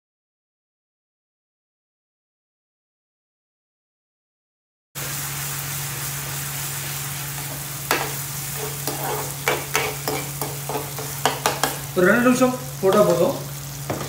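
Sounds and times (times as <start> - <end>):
onions sizzling in oil: 5.0 - 14.0
ladle knocking and scraping a pan: 7.5 - 11.9.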